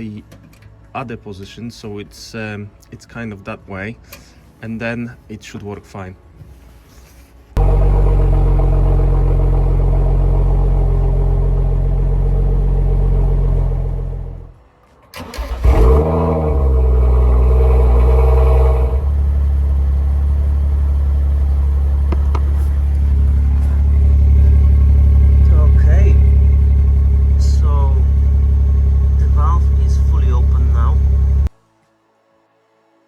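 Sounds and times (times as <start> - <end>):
car engine idling and revving: 7.6 - 14.6, 15.3 - 31.5.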